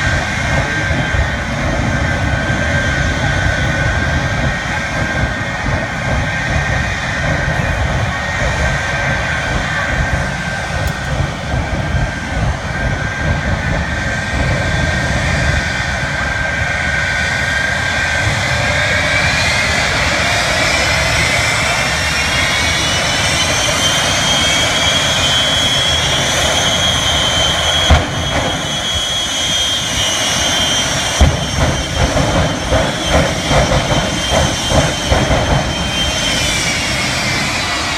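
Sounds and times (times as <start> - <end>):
jet engines whining: 0.0 - 37.9
sharp bang: 26.3 - 36.9.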